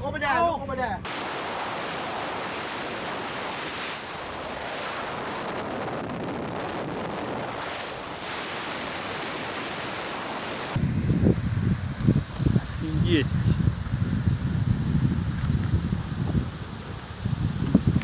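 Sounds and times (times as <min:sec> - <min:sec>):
steady rushing noise: 0:01.0 - 0:18.0.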